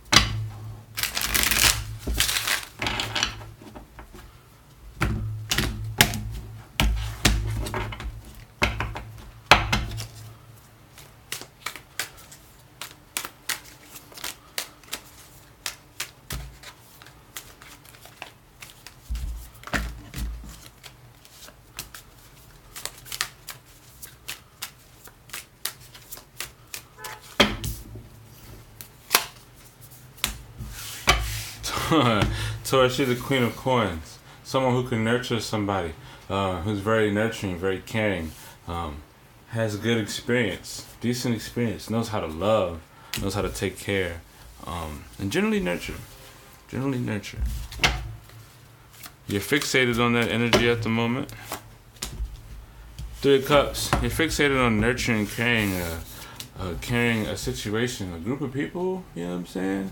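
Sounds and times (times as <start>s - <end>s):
cards being shuffled: 1.0s - 3.5s, 9.9s - 31.6s, 47.4s - 57.3s.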